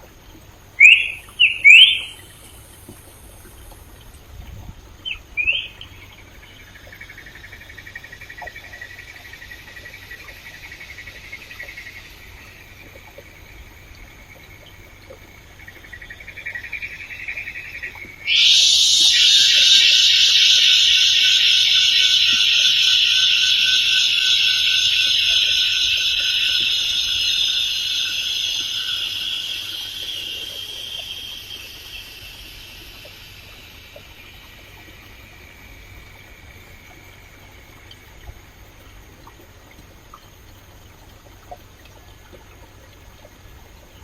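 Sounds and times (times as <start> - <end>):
rising bird call: 0.8 - 2.3, 18.2 - 34.1
pulsing insect or frog trill: 0.8 - 3.6, 5.0 - 38.2
loud dense insect buzz: 17.4 - 36.8.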